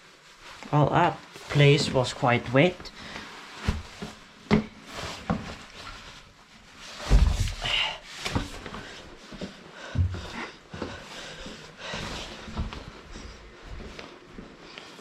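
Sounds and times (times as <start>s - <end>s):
clothing rustling and knocks: 2.8s - 14.6s
heavy thud: 7.0s - 8.0s.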